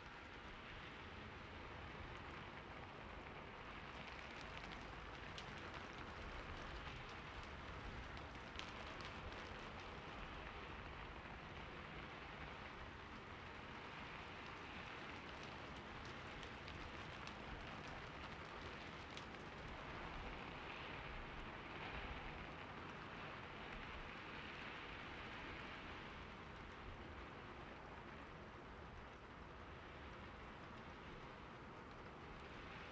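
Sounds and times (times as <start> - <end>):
rain on a roof: 0.0 - 32.9.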